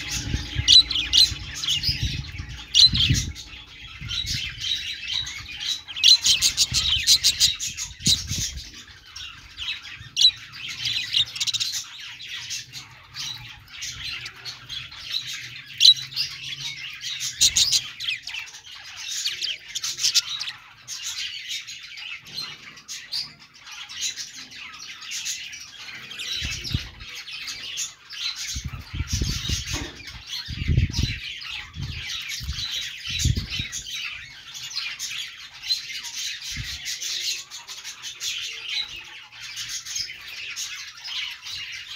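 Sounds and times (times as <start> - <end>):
low thumps: 0.0 - 5.6
budgerigars chattering: 0.0 - 41.9.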